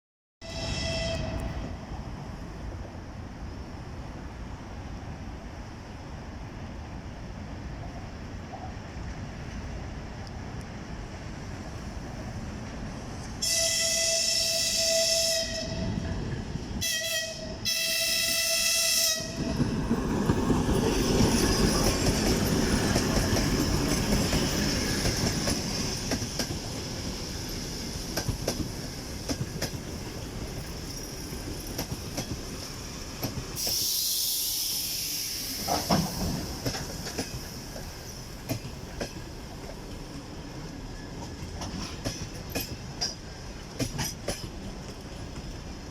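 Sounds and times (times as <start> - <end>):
locomotive horn blasts: 0.4 - 1.7, 13.4 - 16.0, 16.8 - 19.5
locomotive engine and wheels rumbling: 0.8 - 45.9.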